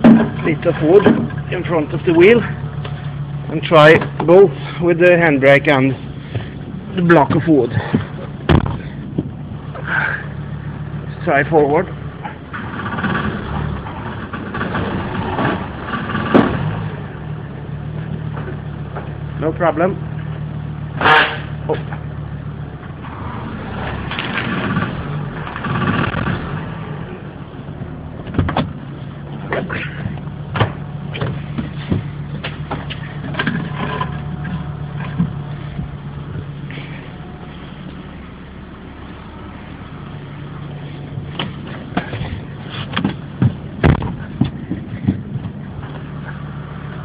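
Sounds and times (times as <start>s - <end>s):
knocks and clunks: 0.0s - 4.4s, 6.1s - 10.2s, 11.9s - 16.9s, 27.8s - 37.4s, 40.9s - 46.7s
car engine revving under load: 0.0s - 47.0s.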